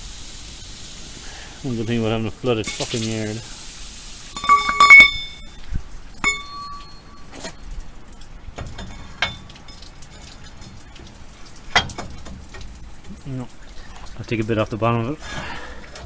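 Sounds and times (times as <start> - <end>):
steel bars knocking on metal: 4.4 - 5.6, 6.2 - 7.3.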